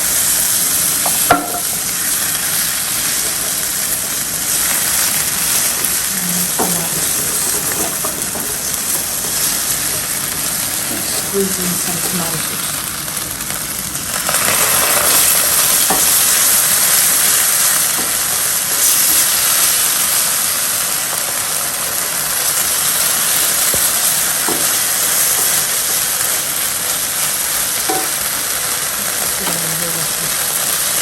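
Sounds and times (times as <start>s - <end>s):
sauce sizzling in a pan: 0.0s - 31.0s
utensil knocking against pan: 1.2s - 1.7s.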